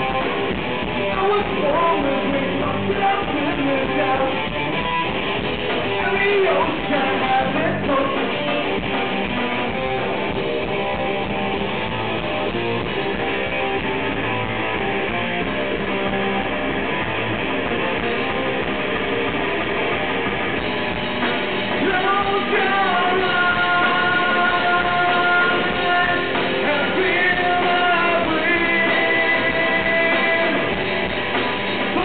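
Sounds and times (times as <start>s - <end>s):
live rock band music: 0.0s - 32.0s
strummed guitar: 0.0s - 32.0s
person singing: 1.1s - 4.8s, 6.0s - 8.5s, 21.7s - 30.8s.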